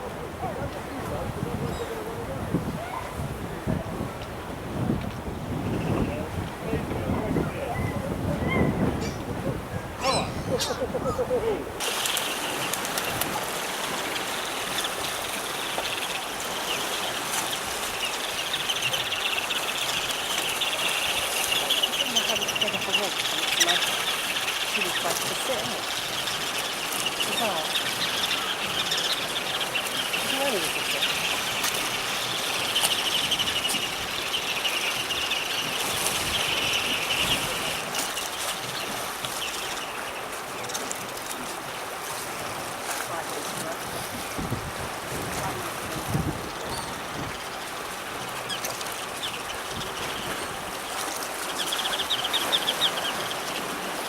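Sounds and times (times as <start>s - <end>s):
sea noise: 0.0s - 54.0s
wind: 0.0s - 54.0s
birds twittering high chirps: 10.0s - 11.2s, 11.8s - 41.3s, 45.5s - 54.0s
water washing: 10.4s - 54.0s.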